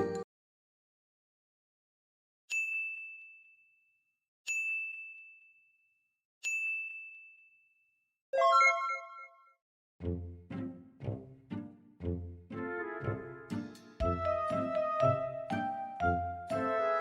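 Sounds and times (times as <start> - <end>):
high bell-like dings: 2.5 - 3.8, 4.5 - 5.8, 6.4 - 7.8.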